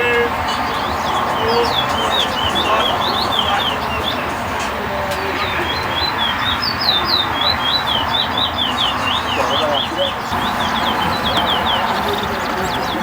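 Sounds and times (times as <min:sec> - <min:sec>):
background murmur: 0:00.0 - 0:13.0
finch singing whistled notes: 0:05.6 - 0:13.0.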